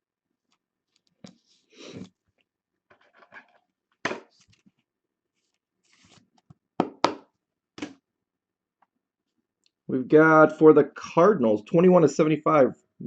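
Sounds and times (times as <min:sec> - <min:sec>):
card packaging rustling: 0:05.4 - 0:06.4.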